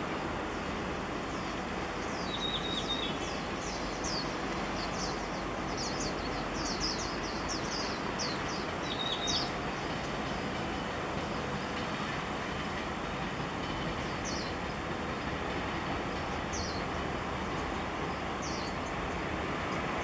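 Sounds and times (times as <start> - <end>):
distant freight train rumble: 0.0 - 20.0
small birds chirping: 1.3 - 11.6, 13.7 - 15.0, 16.2 - 20.0.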